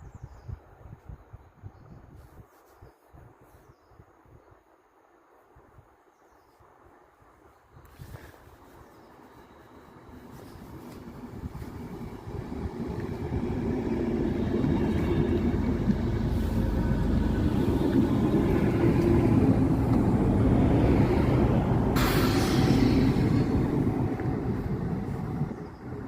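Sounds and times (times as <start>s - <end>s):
train wheels rumbling: 9.5s - 26.0s
sudden hiss: 21.1s - 25.7s.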